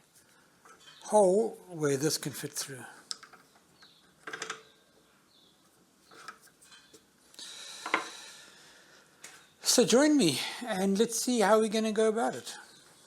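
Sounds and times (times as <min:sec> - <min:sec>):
small parts knocking and clinking: 0:03.1 - 0:04.7
soft hiss: 0:04.9 - 0:11.5.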